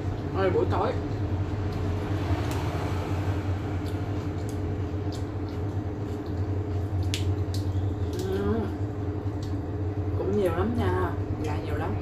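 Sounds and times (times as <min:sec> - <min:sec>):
steady low hum: 0:00.0 - 0:12.0
soft wet chewing: 0:01.0 - 0:10.5.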